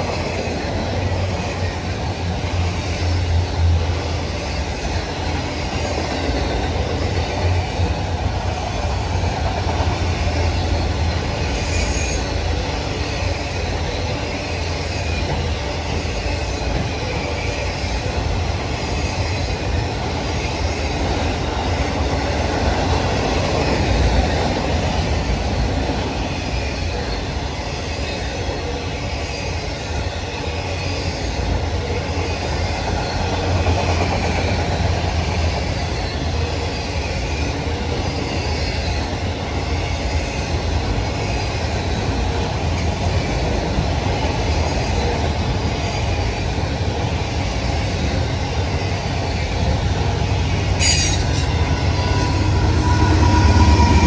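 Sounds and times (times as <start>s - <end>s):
faint wheel squeal: 11.4s - 12.5s
sharp high screech: 11.5s - 12.4s, 50.7s - 54.0s.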